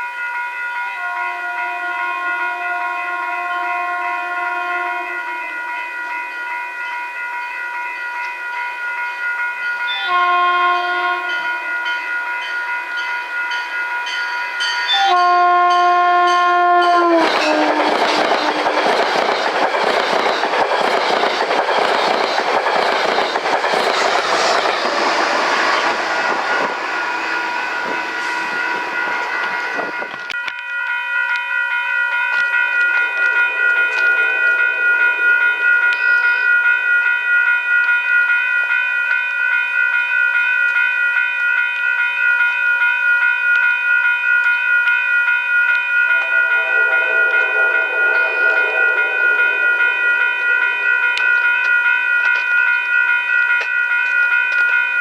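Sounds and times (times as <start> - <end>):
train horn: 0.8 - 5.8, 9.9 - 11.9, 14.9 - 18.8, 24.3 - 30.2, 46.1 - 51.8
train wheels clattering on rails: 16.9 - 30.4.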